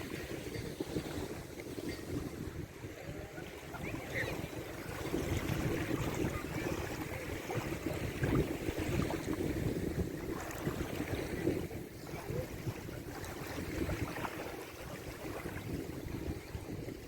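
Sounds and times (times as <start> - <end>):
water rushing along a board: 0.0 - 17.0.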